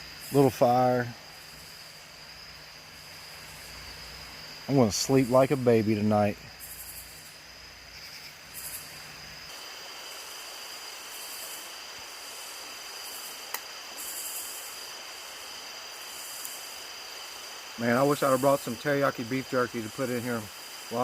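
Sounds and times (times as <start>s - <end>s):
insects chirping: 0.0s - 21.0s
sharp click: 13.5s - 13.7s.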